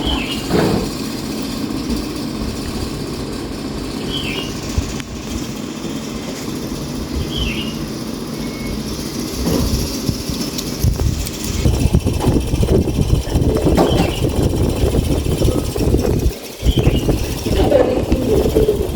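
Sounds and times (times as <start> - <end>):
engine running with low drone: 0.0 - 18.9
short high chirp: 7.3 - 8.9.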